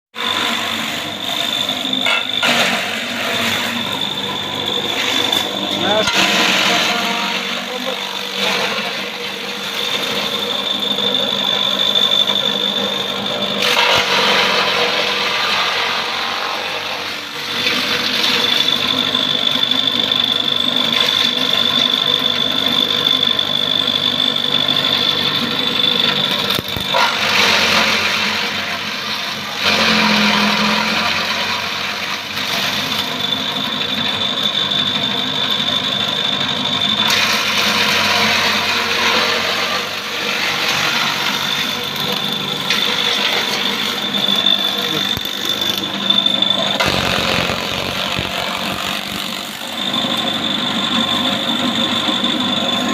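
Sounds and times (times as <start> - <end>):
electric grass chopper whining: 0.2 - 19.2, 24.6 - 33.3, 37.0 - 52.9.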